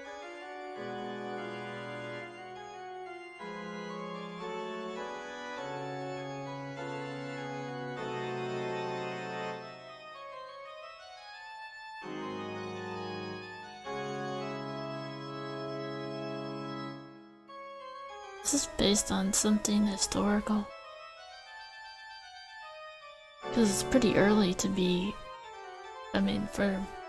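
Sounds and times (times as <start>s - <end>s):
organ playing slow held chords: 0.0s - 20.0s.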